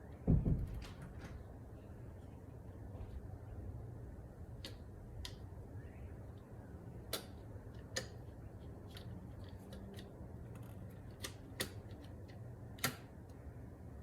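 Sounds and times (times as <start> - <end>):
faint steady low hum: 0.0 - 14.0.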